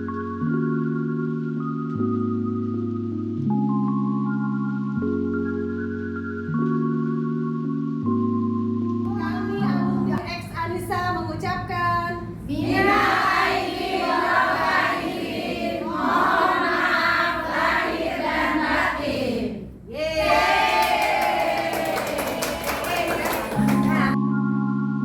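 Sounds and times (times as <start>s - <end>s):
chorus of voices singing: 12.6s - 20.8s.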